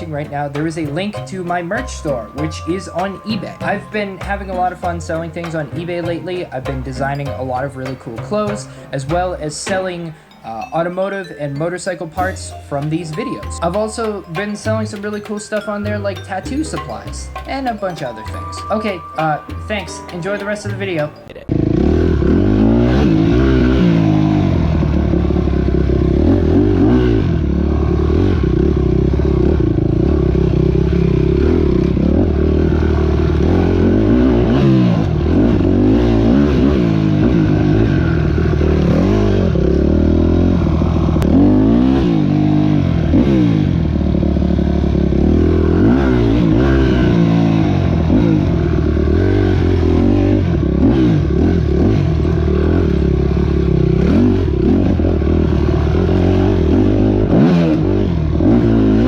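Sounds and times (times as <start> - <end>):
motorcycle engine revving: 21.5 - 59.0.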